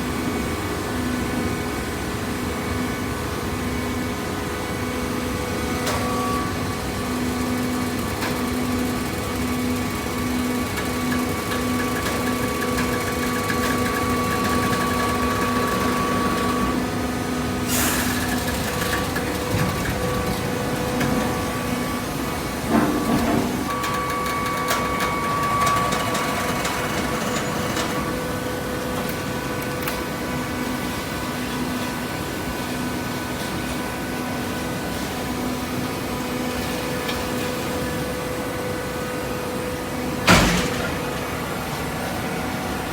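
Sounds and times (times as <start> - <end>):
clicks and clanks: 40.3 - 41.4.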